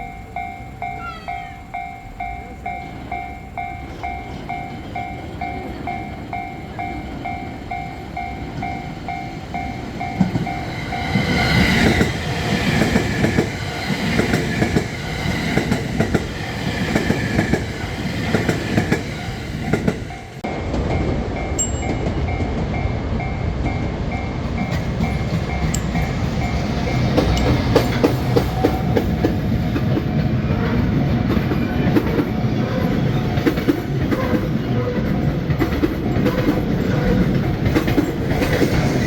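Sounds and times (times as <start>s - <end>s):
level crossing bell ringing: 0.0s - 12.1s, 19.6s - 28.1s
train wheels clacking over rails: 1.7s - 39.0s.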